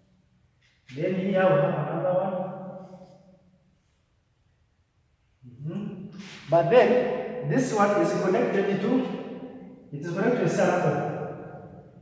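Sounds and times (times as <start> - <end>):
man speaking: 0.9 - 2.8, 5.4 - 9.2, 9.9 - 11.4.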